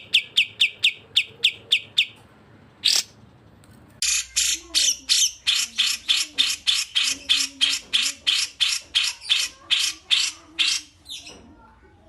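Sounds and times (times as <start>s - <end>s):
bird calling harsh scratchy notes: 4.0s - 11.3s.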